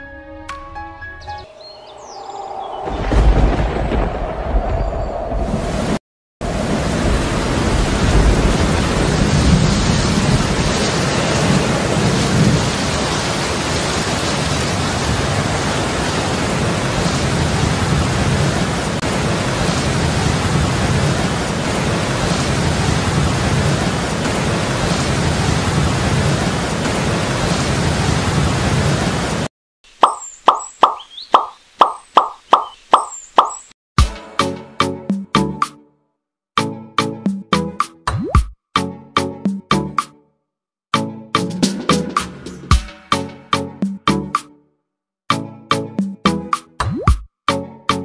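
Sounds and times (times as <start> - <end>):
thunder rumbling: 2.0 - 29.5
heavy rain: 2.9 - 29.5.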